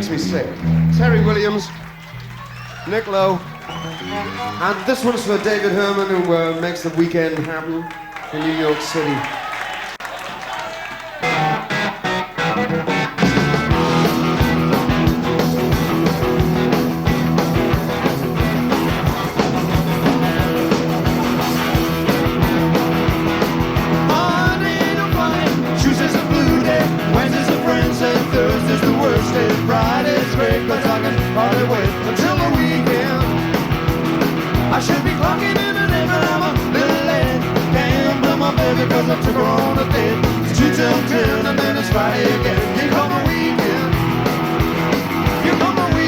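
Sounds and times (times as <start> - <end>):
lead electric guitar bending notes: 0.0 - 2.5, 11.2 - 41.6
live rock band playing: 0.0 - 6.2, 11.2 - 46.0
drums keeping a steady beat: 13.1 - 46.0.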